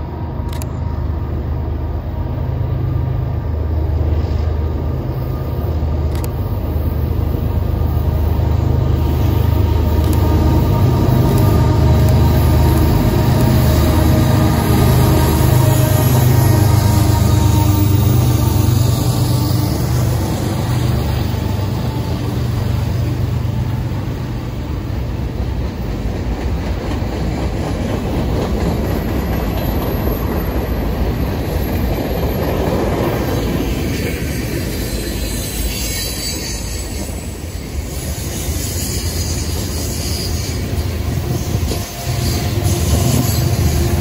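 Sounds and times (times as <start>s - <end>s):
locomotive engine hum: 0.0s - 35.8s
train wheels clattering on rails: 8.2s - 44.0s
wheel squeal: 34.7s - 43.9s.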